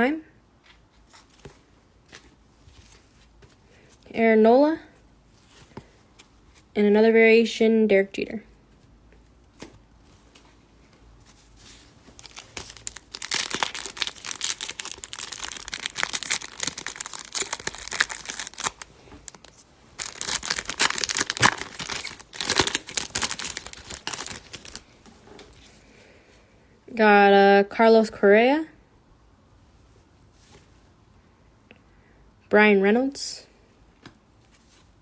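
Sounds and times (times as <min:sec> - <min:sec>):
plastic wrapper tearing and crinkling: 0:12.1 - 0:24.9.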